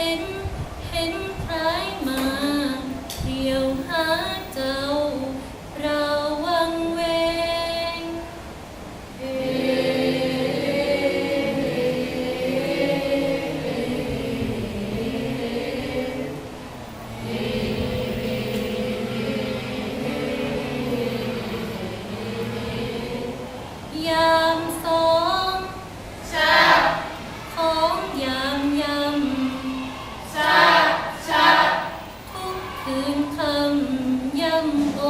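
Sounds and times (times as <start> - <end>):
group of voices singing: 9.1 - 35.0
single voice chanting: 26.2 - 33.8.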